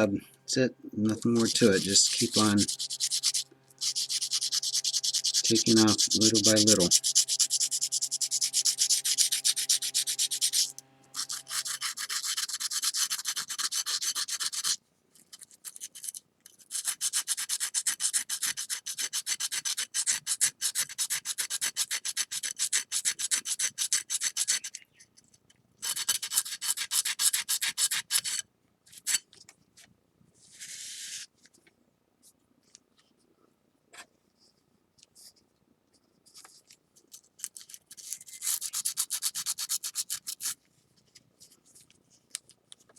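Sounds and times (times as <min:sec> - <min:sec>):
sandpaper rubbing on ceramic: 0:01.2 - 0:14.8, 0:16.7 - 0:24.8, 0:38.0 - 0:40.6.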